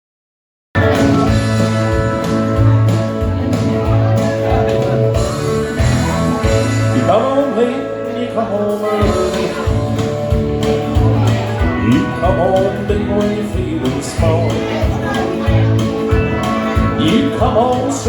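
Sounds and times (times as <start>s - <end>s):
live band playing country music: 0.8s - 18.0s
pulsing bass line: 0.8s - 18.0s
man singing: 6.4s - 18.0s.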